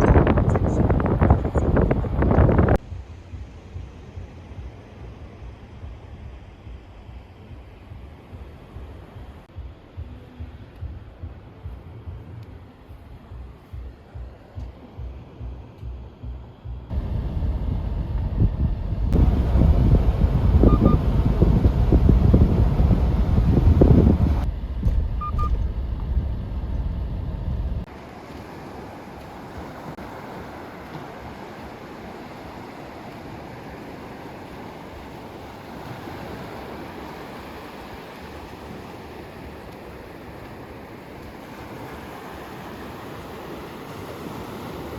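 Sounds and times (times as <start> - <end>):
wind buffeting microphone: 0.0 - 12.4, 16.2 - 44.9
rush of wind: 0.0 - 15.5, 16.9 - 44.9
sea surf: 19.1 - 24.5, 26.9 - 44.9.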